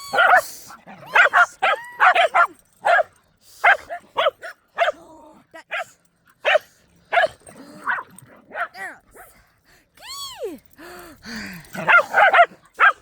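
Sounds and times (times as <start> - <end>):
puppies barking: 1.1 - 5.0, 5.7 - 8.8, 11.8 - 13.0.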